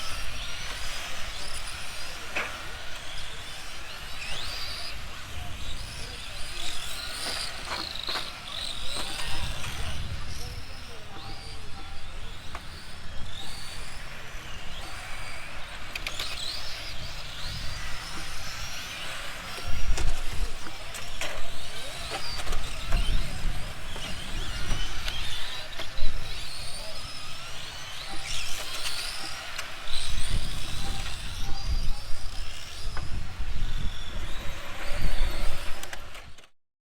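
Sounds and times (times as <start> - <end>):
electric rc car motors whining: 0.0 - 36.6
wind rumble on microphone: 8.8 - 27.1, 29.9 - 36.4.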